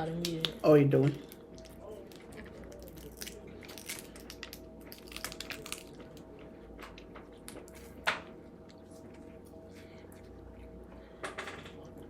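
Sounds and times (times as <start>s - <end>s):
crab shells cracking: 1.3s - 7.7s.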